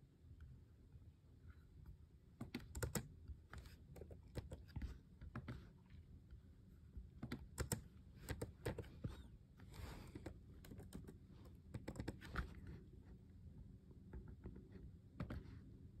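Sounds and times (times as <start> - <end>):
typing on computer keyboard: 2.4 - 5.6, 7.2 - 8.9, 10.2 - 12.5.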